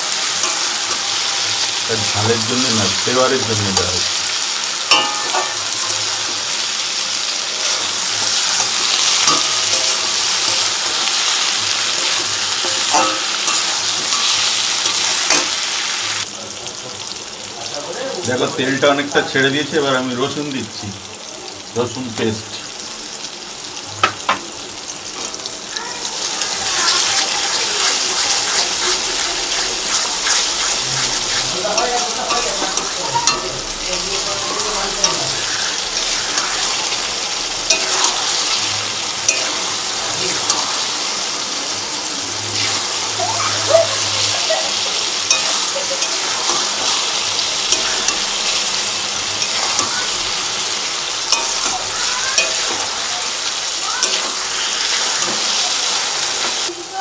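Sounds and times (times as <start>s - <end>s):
garlic and onions sizzling in oil: 0.0s - 57.0s
spatula tapping a pan: 4.9s - 6.4s, 8.2s - 15.6s, 24.0s - 24.4s.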